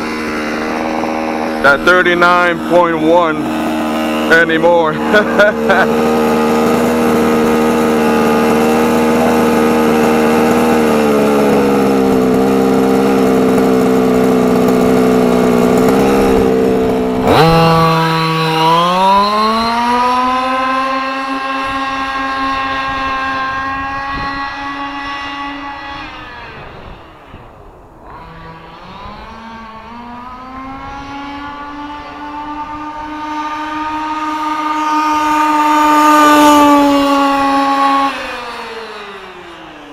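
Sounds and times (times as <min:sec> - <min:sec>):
two-stroke engine revving high: 0:00.0 - 0:39.9.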